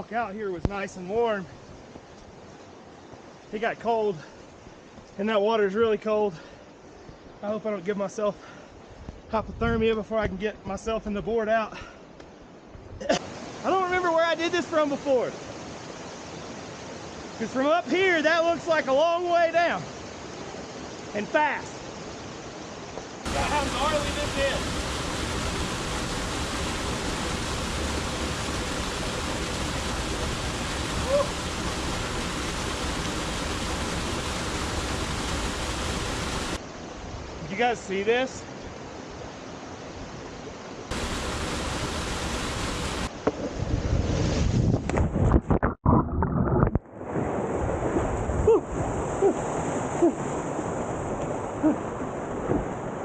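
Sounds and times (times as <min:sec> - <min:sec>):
waterfall rushing: 0:13.1 - 0:21.8, 0:23.2 - 0:36.6, 0:40.9 - 0:43.1.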